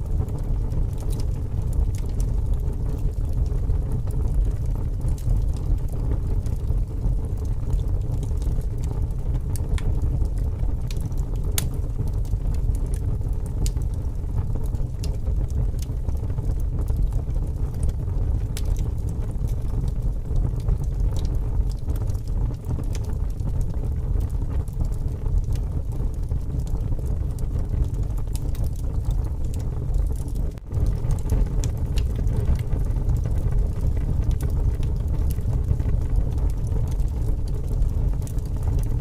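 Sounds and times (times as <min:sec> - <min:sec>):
wood fire crackling and popping: 0:00.0 - 0:39.0
strong wind rumbling: 0:26.2 - 0:39.0.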